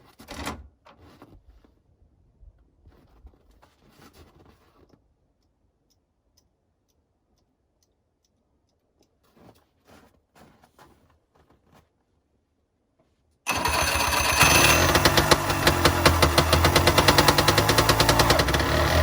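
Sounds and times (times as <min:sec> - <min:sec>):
soft rustling and handling noise: 0:00.0 - 0:06.0, 0:07.8 - 0:13.4.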